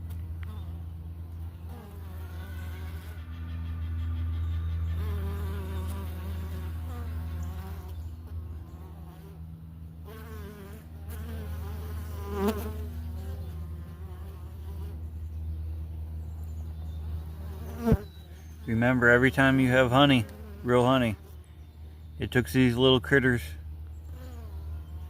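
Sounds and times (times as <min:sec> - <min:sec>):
hum of many bees: 0:00.0 - 0:25.0
bee flying close past: 0:01.6 - 0:15.1, 0:17.1 - 0:18.1, 0:24.1 - 0:25.0.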